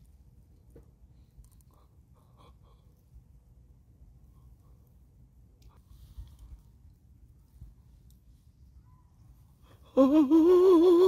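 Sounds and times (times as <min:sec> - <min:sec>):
soft hiss: 0:02.8 - 0:10.1.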